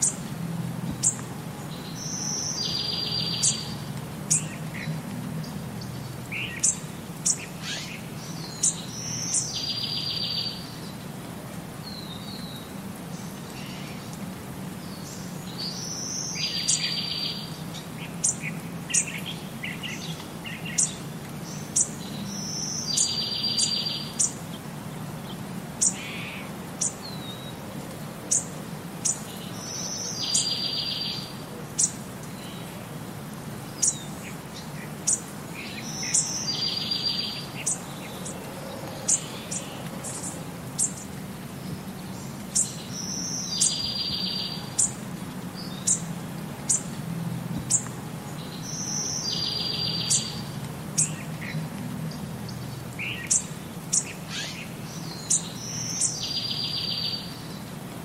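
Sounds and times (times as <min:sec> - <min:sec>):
background hiss: 0:00.0 - 0:58.0
bird song with buzzy trill: 0:01.9 - 0:04.6, 0:05.8 - 0:10.8, 0:20.7 - 0:24.4, 0:35.1 - 0:38.2, 0:42.2 - 0:44.9, 0:52.5 - 0:57.5.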